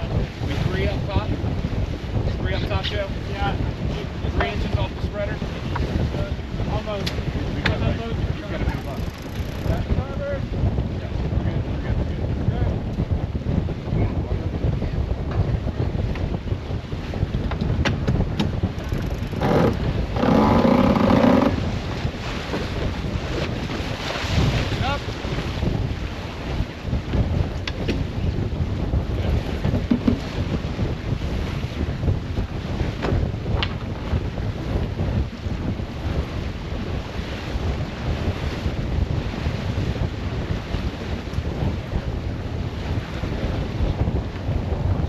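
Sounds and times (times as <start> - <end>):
buzzing on boat: 0.0 - 45.0
wind buffeting microphone: 0.0 - 45.0.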